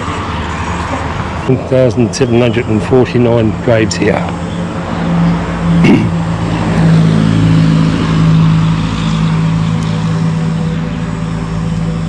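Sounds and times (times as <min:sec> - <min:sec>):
motor engine humming: 0:00.0 - 0:12.0.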